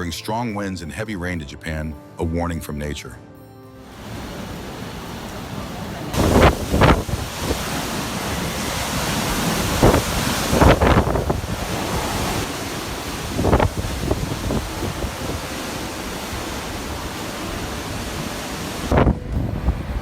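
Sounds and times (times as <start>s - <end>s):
wind rushing: 4.0s - 20.0s
wind gusts buffeting microphone: 4.1s - 20.0s.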